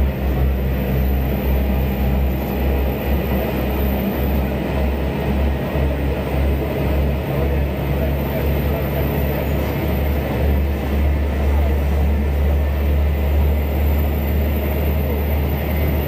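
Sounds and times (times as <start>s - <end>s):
train rumbling in tunnel: 0.0s - 16.0s.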